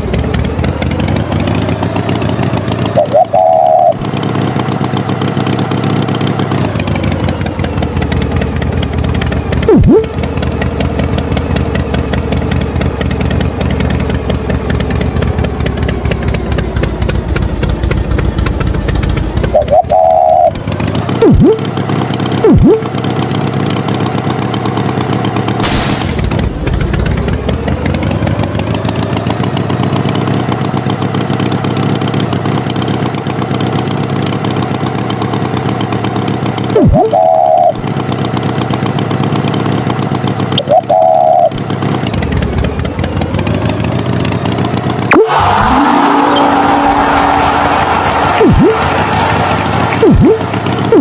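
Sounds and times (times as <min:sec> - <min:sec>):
tractor engine running: 0:00.0 - 0:51.0
short higher tones: 0:03.0 - 0:04.0, 0:09.7 - 0:10.1, 0:21.2 - 0:21.6, 0:22.4 - 0:22.9, 0:36.8 - 0:37.8, 0:40.6 - 0:41.5, 0:45.1 - 0:48.9, 0:50.0 - 0:51.0
quick falling swoops: 0:25.6 - 0:26.4, 0:45.1 - 0:49.2.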